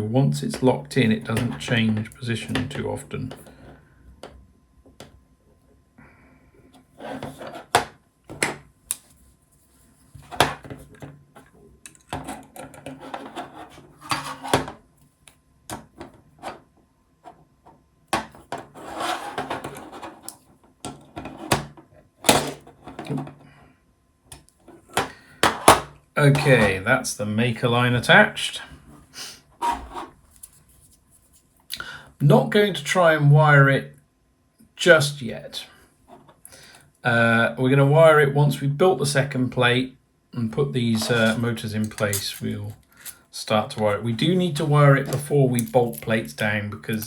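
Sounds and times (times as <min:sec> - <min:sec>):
scraping and rubbing of screws: 0:11.9 - 0:14.6, 0:18.5 - 0:20.4.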